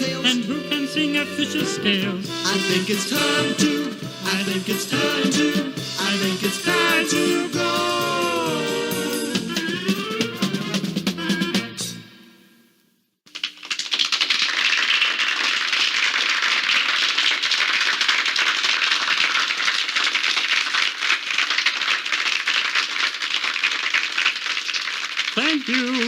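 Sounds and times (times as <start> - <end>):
crowd clapping: 13.3 - 26.0.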